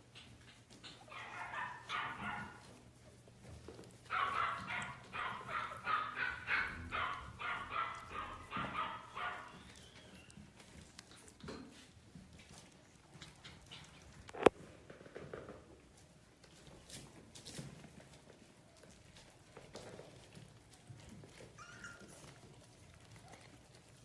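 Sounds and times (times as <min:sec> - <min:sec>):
puppies yipping and whining: 0:00.2 - 0:02.8, 0:04.0 - 0:11.4, 0:20.2 - 0:24.0.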